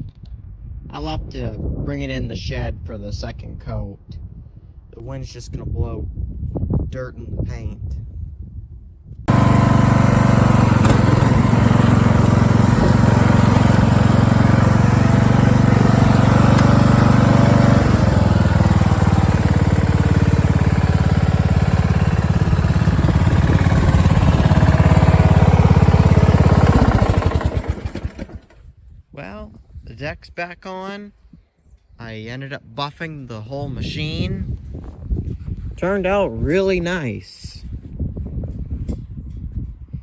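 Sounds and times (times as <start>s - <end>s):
riding lawn mower engine running: 9.3s - 28.7s.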